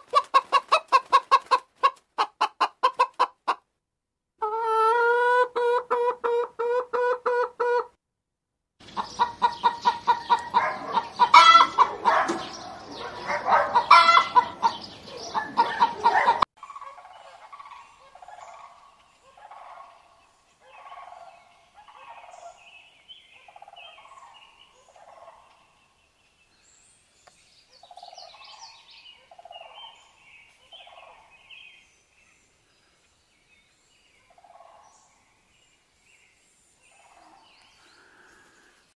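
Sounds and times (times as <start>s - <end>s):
fowl squawks and clucks: 0.0s - 3.6s, 4.4s - 8.0s, 8.8s - 22.7s, 23.4s - 25.7s, 27.9s - 31.4s, 34.3s - 35.0s.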